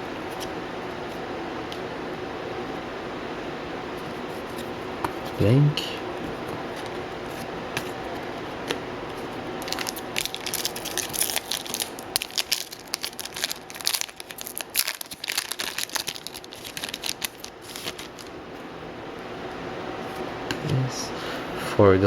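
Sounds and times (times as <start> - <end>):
foil wrapper crinkling and tearing: 9.6 - 18.3.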